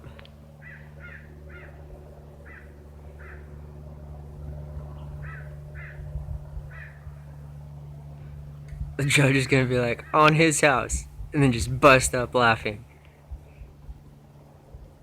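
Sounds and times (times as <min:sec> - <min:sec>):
steady low hum: 0:00.0 - 0:15.0
crow cawing: 0:00.6 - 0:01.8, 0:02.4 - 0:03.5, 0:05.2 - 0:06.1, 0:06.7 - 0:07.2.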